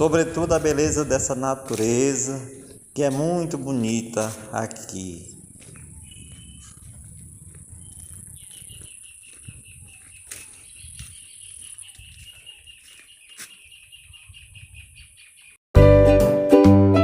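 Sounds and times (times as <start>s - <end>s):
low rumble: 5.1s - 8.7s.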